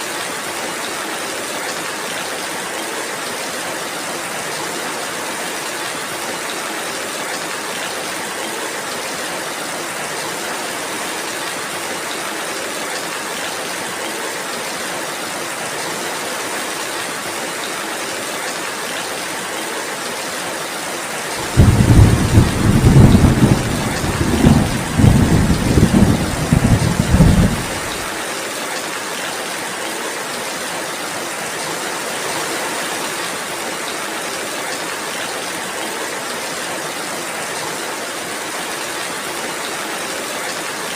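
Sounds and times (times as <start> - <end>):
steady rainfall: 0.0 - 40.9
rumbling thunder: 21.4 - 28.1.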